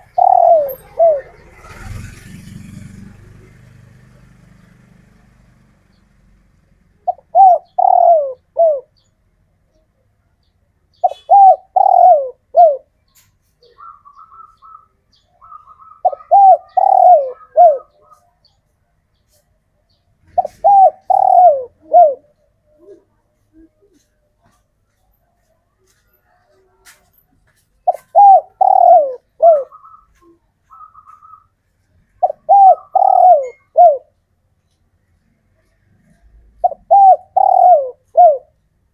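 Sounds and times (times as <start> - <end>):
high chirping trill: 0.0 - 1.3
dove cooing: 0.0 - 2.9, 7.0 - 9.0, 11.0 - 12.9, 13.6 - 18.4, 20.3 - 24.6, 27.8 - 31.5, 32.1 - 34.2, 35.6 - 38.6.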